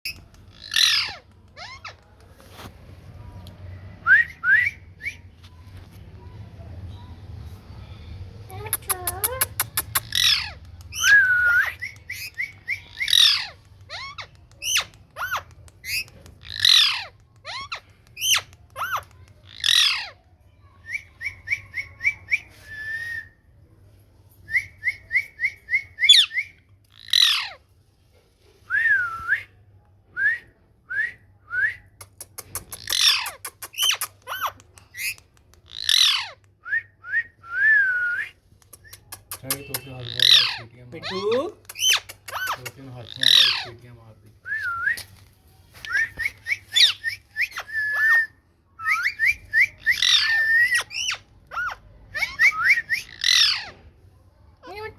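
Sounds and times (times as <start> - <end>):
parrot screeching and whistling: 0.6 - 1.9, 39.2 - 43.7, 45.9 - 53.8.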